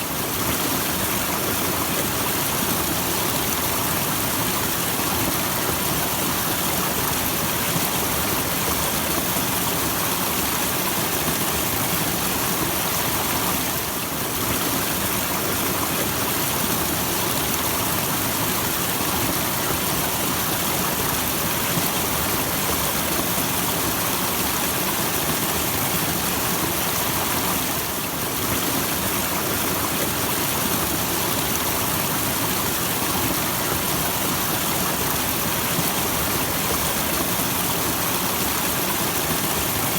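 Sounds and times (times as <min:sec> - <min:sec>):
small waterfall splashing: 0:00.0 - 0:39.9.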